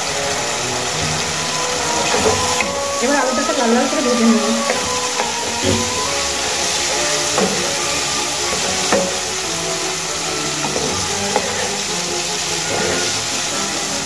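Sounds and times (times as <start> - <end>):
potatoes sizzling in hot oil: 0.0 - 14.0
wooden spatula knocking on pan: 4.6 - 9.4, 10.6 - 11.8.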